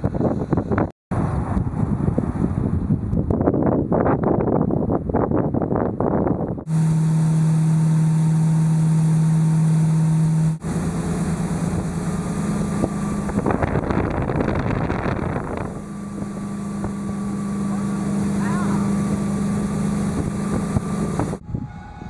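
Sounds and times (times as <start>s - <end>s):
wind noise: 0.0s - 7.0s, 11.5s - 22.0s
water noise: 6.7s - 21.4s
motor running steadily: 6.7s - 22.0s.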